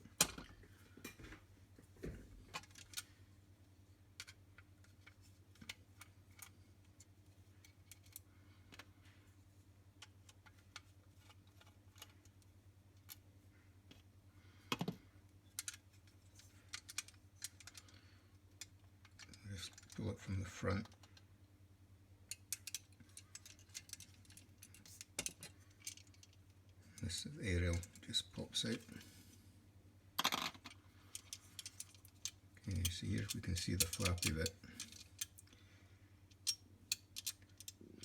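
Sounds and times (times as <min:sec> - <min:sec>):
tools clicking on metal parts: 0:22.3 - 0:26.3, 0:31.1 - 0:35.4, 0:36.3 - 0:37.8.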